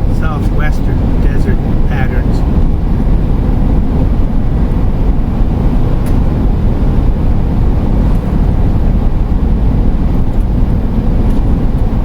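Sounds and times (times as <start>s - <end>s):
road and engine rumble in cab: 0.0s - 12.0s.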